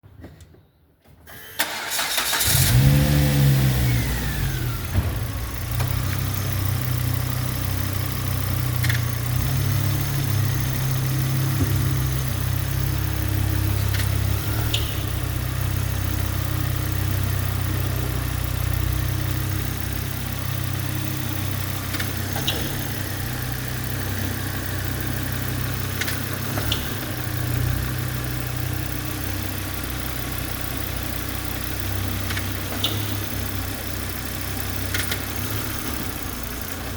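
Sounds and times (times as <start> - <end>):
car engine cranking and idling: 1.3 - 36.9.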